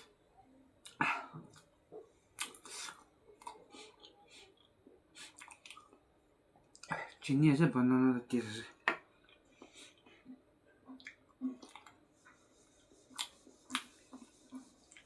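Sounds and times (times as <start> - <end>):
person chewing and smacking: 0.8 - 6.0, 6.7 - 7.2, 9.2 - 12.0, 13.0 - 15.0.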